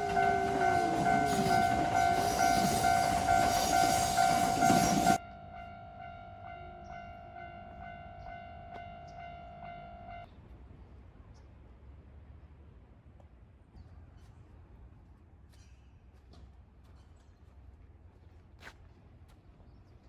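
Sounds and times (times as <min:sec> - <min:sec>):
electronic warning bell dings: 0:00.0 - 0:10.2
train running past: 0:00.0 - 0:13.0.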